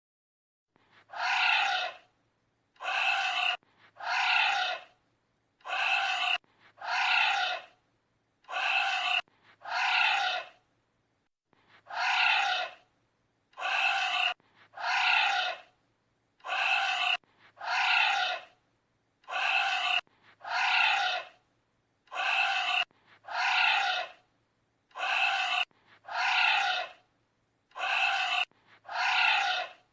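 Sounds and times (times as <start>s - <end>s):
animal cries sliding down: 1.1s - 2.0s, 2.8s - 4.9s, 5.6s - 7.7s, 8.5s - 10.6s, 11.9s - 12.8s, 13.6s - 15.7s, 16.4s - 18.5s, 19.3s - 21.4s, 22.1s - 24.2s, 25.0s - 27.0s, 27.8s - 29.8s.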